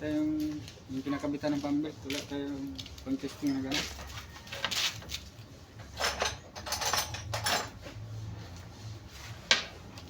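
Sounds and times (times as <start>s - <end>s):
metal tools clinking and scraping: 3.2s - 5.2s, 5.8s - 8.0s
metal clatter: 5.9s - 7.8s.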